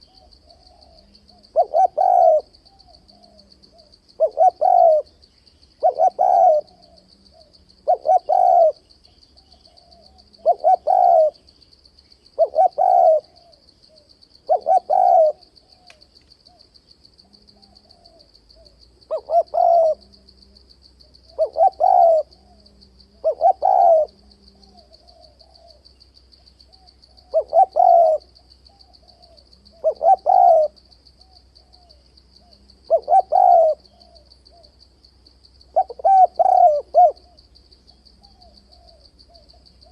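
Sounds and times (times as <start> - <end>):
dove cooing: 0.0 - 5.2, 5.8 - 8.8, 9.4 - 11.5, 12.4 - 15.9, 17.3 - 20.3, 21.2 - 25.9, 26.7 - 34.8, 35.7 - 37.4, 38.2 - 39.9.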